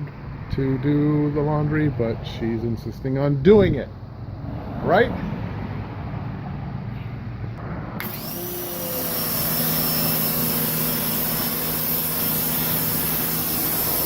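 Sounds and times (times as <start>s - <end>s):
pressure washer motor hum: 8.0s - 14.0s
water spray hissing: 8.8s - 14.0s.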